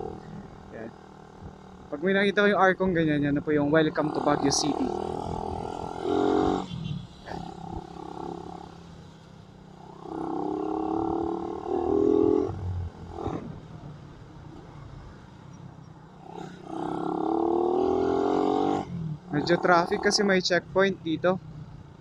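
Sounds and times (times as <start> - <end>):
motorcycle engine pulling away: 16.2 - 20.2.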